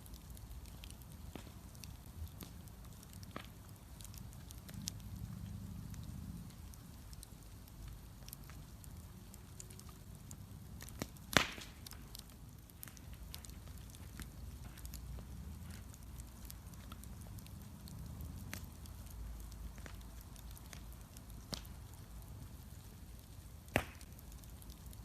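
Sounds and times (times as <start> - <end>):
bonfire crackling: 0.0 - 25.0
low rumble: 4.4 - 7.2
loud sharp pop: 11.3 - 11.8, 23.7 - 24.0.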